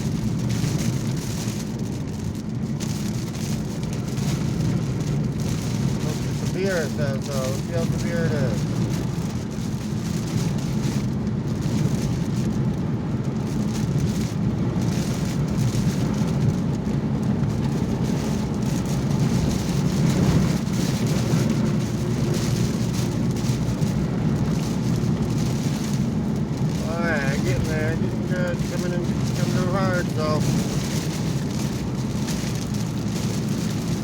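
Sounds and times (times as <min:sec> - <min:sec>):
engine and tyres hum: 0:00.0 - 0:34.0
heavy rain on a car: 0:00.0 - 0:34.0.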